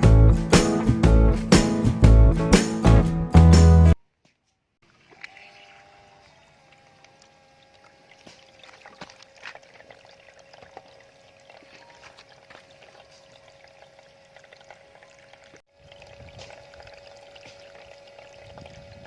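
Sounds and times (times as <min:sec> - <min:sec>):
water trickling from fountain: 0:07.6 - 0:19.0.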